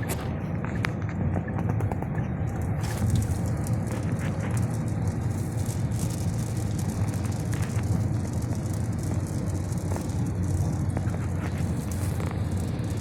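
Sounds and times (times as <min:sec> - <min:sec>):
car driving rumble: 0:00.0 - 0:13.0
hail pelting a car: 0:02.8 - 0:13.0.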